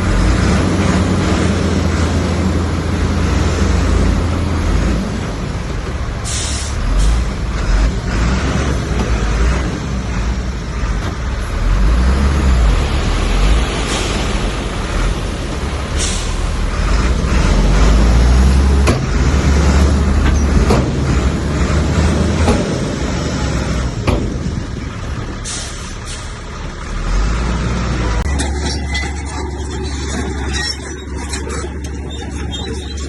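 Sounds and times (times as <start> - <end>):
heavy diesel engine rumble: 0.0 - 33.0
scraping noise: 28.2 - 33.0.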